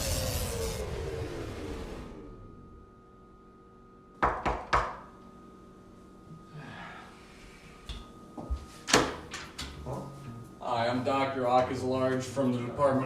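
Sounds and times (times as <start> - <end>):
knocking on wooden door: 4.2 - 5.0.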